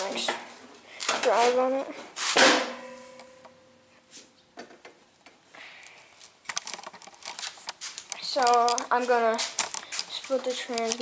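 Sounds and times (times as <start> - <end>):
ringing metal clank: 2.6 - 3.8.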